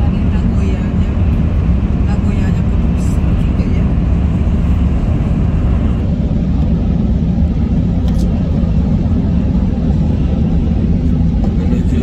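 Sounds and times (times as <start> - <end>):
train interior low rumble: 0.0 - 12.0.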